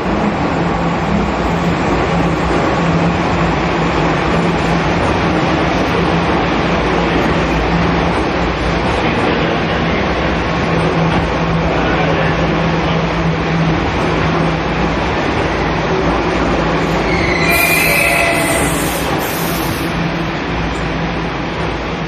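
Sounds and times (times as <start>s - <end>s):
train wheels and motors rumbling: 0.0s - 22.0s
wheels squealing on rails: 16.5s - 20.3s.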